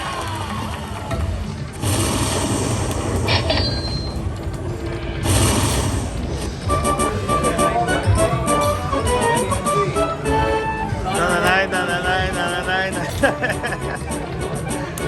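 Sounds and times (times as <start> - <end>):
casino floor noise: 1.2 - 14.4
slot machine whooshing swells: 1.8 - 8.1.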